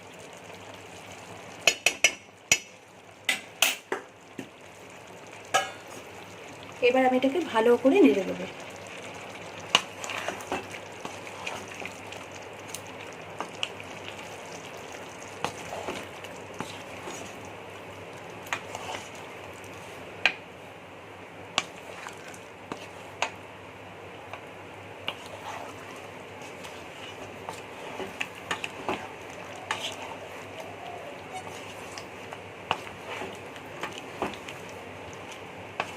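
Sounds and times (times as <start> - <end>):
food sizzling in a pan: 0.0 - 20.1, 25.0 - 35.9
spatula knocking against pan: 1.6 - 2.7.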